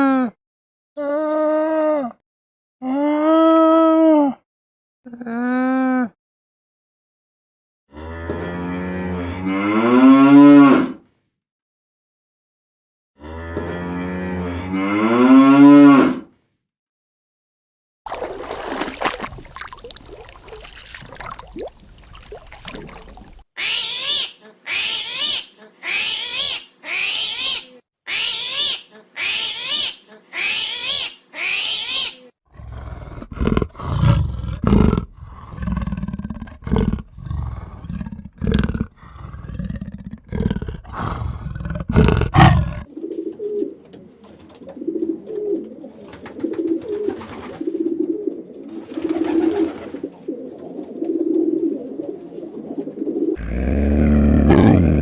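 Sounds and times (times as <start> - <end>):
animal calls: 22.9 - 42.9, 53.4 - 55.0
loud deep rough calls: 32.6 - 42.9, 53.4 - 55.0
soft cooing: 32.6 - 43.8, 53.3 - 55.0.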